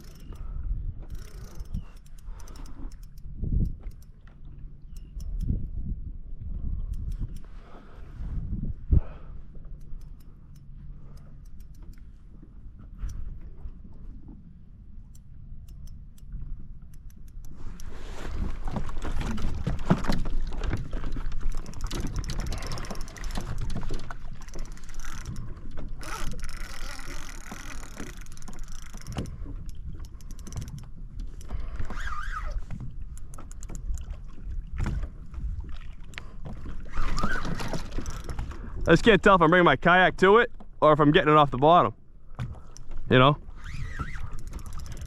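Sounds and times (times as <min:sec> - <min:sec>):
fishing reel gear clicking: 0:00.0 - 0:04.2, 0:04.9 - 0:05.7, 0:06.9 - 0:07.5, 0:09.7 - 0:12.1, 0:15.1 - 0:17.9, 0:21.3 - 0:34.0, 0:37.1 - 0:38.5, 0:43.6 - 0:45.0.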